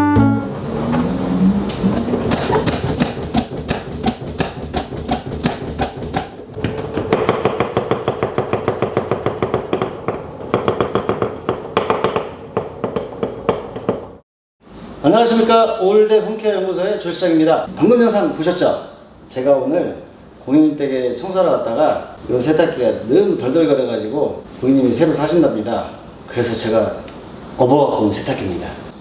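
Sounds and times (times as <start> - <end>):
washing machine hum: 0.4 - 14.2
washing machine drum knocking: 1.7 - 14.1.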